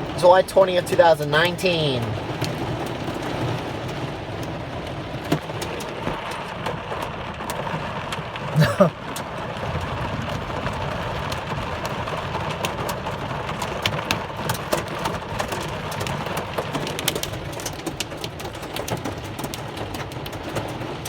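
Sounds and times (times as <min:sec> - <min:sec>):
hailstones ticking on a car: 0:00.0 - 0:21.0
heavy rain on a car: 0:00.0 - 0:21.0.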